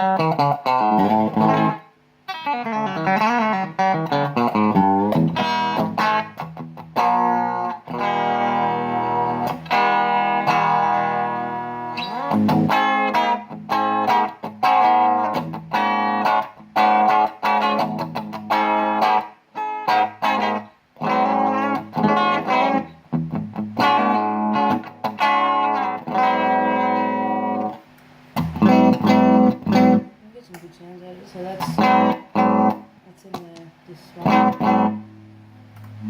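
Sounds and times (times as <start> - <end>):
distorted electric guitar chords: 0.0 - 30.2, 31.4 - 33.4, 34.1 - 36.0
buzzy guitar string: 0.0 - 30.7, 31.3 - 36.0.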